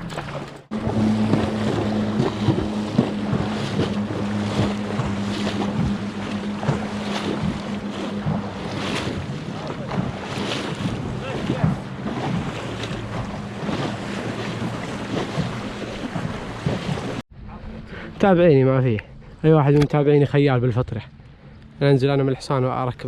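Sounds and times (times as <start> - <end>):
short splashes: 0.0 - 17.2
sea surf: 0.0 - 18.8
low motor hum: 0.0 - 23.0
wind buffeting microphone: 0.7 - 20.7.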